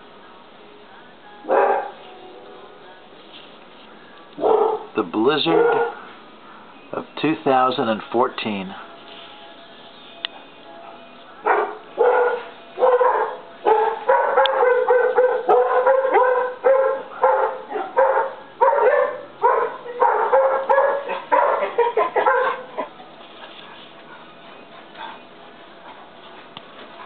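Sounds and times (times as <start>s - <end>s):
dogs barking rapidly: 1.5s - 2.0s, 4.4s - 6.7s, 10.8s - 23.0s.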